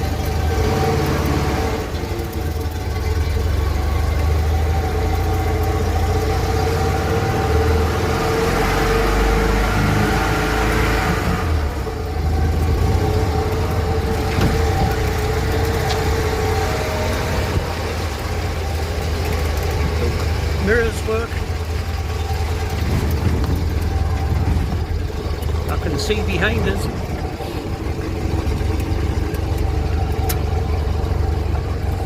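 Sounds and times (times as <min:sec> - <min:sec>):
flat-twin engine running: 0:00.0 - 0:32.0.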